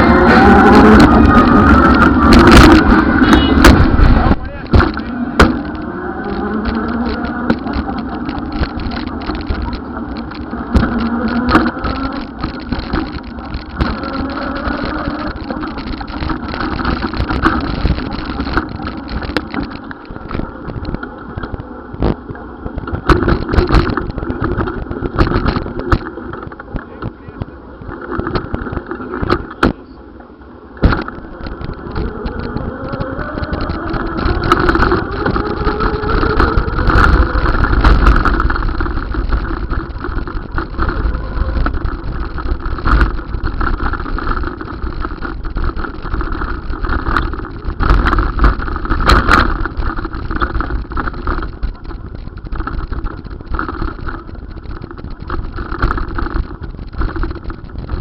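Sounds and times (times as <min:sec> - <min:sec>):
vehicle engines accelerating: 0:00.0 - 0:20.6
knocks and rattles: 0:00.0 - 0:27.2, 0:27.8 - 0:29.8, 0:30.7 - 0:58.0
road noise: 0:00.0 - 0:58.0.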